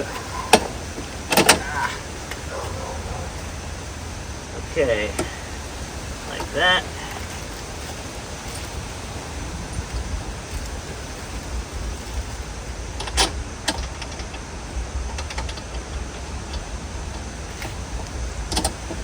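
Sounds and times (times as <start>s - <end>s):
low steady rumble: 0.0s - 19.0s
clicks and knocks of parts: 0.1s - 3.6s, 13.0s - 19.0s.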